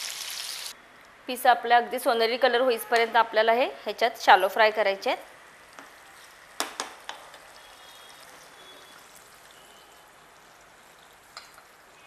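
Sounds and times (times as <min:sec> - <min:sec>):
chicken sizzling in hot oil: 0:00.0 - 0:00.8, 0:06.0 - 0:12.0.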